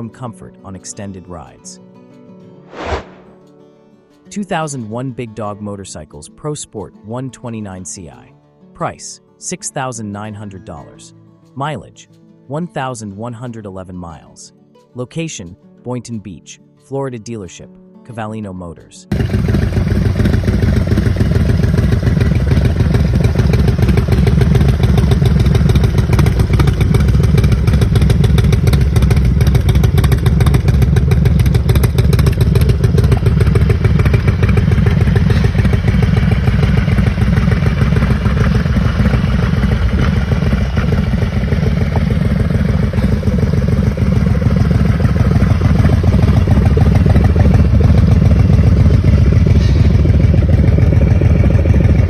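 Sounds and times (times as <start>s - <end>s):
motorcycle engine running: 19.1s - 52.0s.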